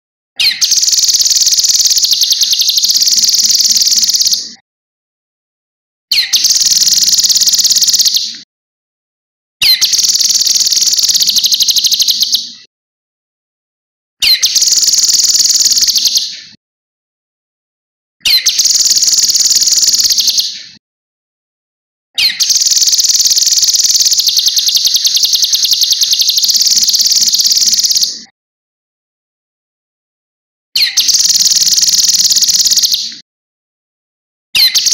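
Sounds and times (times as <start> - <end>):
bird singing high fast trills: 0.4 - 4.5, 6.1 - 8.3, 9.6 - 12.5, 14.2 - 16.3, 18.3 - 20.6, 22.2 - 28.1, 30.8 - 33.0, 34.6 - 34.9.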